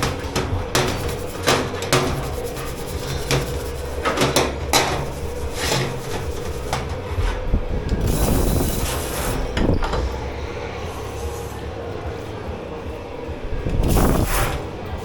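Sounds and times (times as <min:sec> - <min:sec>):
kitchenware knocks and scrapes: 0:00.0 - 0:07.5
low machine hum: 0:00.0 - 0:15.0.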